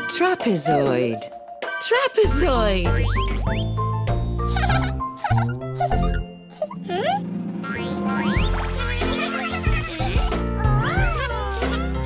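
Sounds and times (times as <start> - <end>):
upbeat cartoon background music: 0.0 - 12.0
springy cartoon sound effect: 1.6 - 3.7, 4.5 - 9.5.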